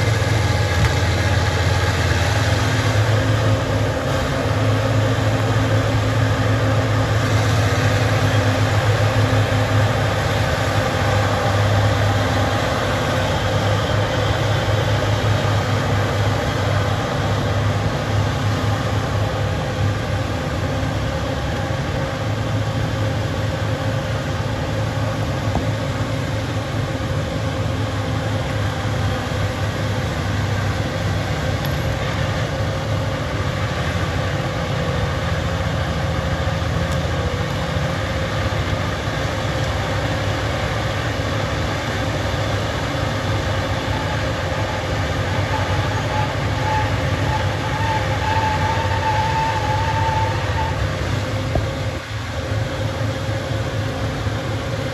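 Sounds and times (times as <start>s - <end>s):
bulldozer diesel engine rumbling: 0.0s - 54.9s
high wavering whine: 0.0s - 54.9s.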